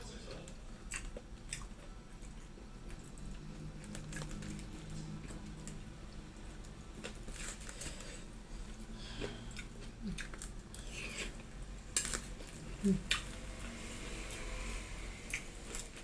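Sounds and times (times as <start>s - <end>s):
person chewing: 0.8s - 5.8s, 6.4s - 13.4s.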